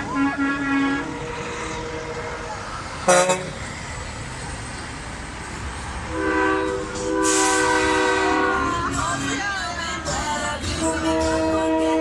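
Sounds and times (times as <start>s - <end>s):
truck air horns: 0.0s - 3.6s, 6.1s - 9.4s, 10.8s - 12.0s
low engine rumble: 0.0s - 12.0s.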